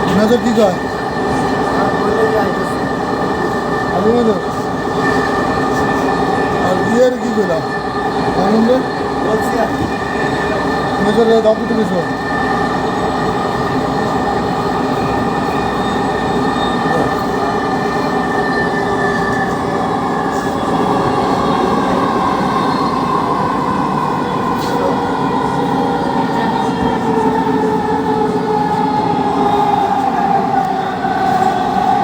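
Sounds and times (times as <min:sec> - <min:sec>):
train rumble: 0:00.0 - 0:32.0.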